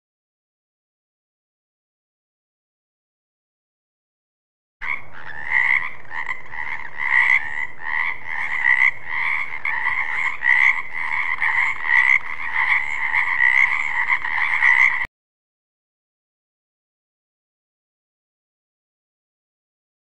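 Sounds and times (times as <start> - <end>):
frogs calling in chorus: 4.8 - 15.1.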